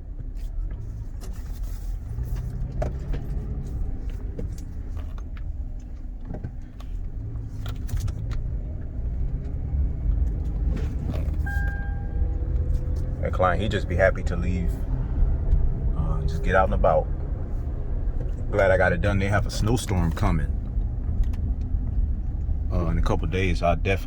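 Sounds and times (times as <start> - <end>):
car engine low rumble: 0.0 - 24.0
light clicks and rattles: 0.2 - 11.5, 19.6 - 23.4.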